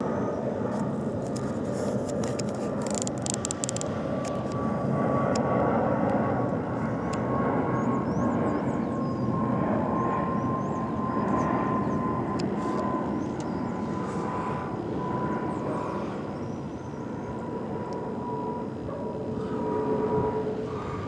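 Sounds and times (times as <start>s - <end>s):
jet airliner flying overhead: 0.0s - 21.0s.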